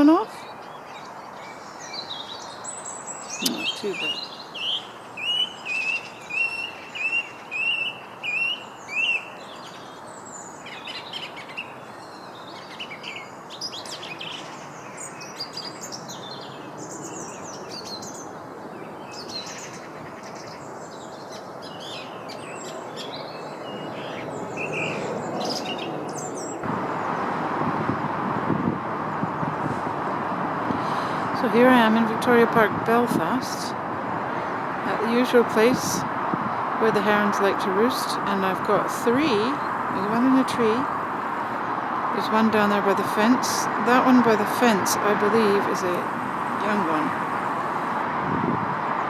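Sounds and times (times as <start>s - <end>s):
birds chirping and trilling: 0.0s - 27.4s
steady rushing noise: 24.2s - 49.0s.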